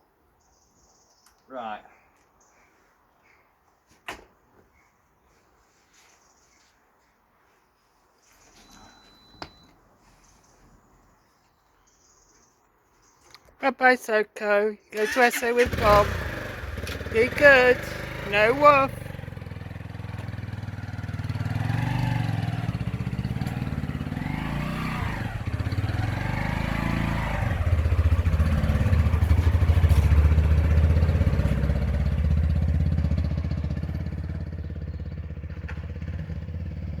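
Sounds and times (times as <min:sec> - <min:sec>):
motorcycle engine revving: 0:15.0 - 0:37.0.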